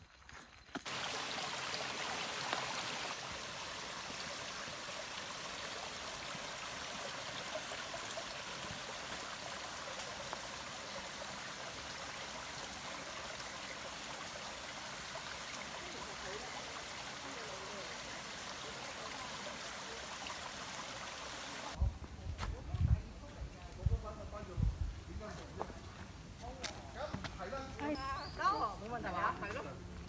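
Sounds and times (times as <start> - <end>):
stream water rushing: 0.9 - 21.8.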